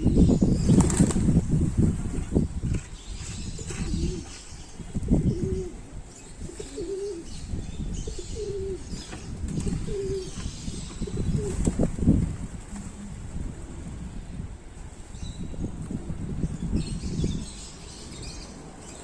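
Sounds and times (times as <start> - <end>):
wings flapping: 0.6 - 1.4
pigeons cooing: 3.6 - 4.4, 5.0 - 11.8.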